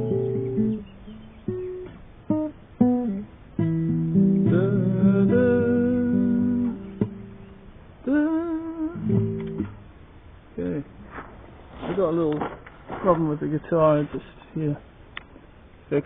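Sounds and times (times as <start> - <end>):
acoustic guitar: 0.0 - 10.0
person singing: 4.4 - 7.1, 8.0 - 9.4.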